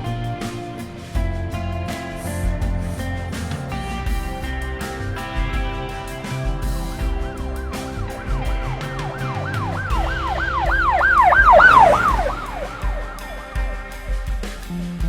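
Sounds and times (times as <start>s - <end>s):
background music with steady beat: 0.0s - 15.0s
police siren yelping: 7.6s - 13.7s.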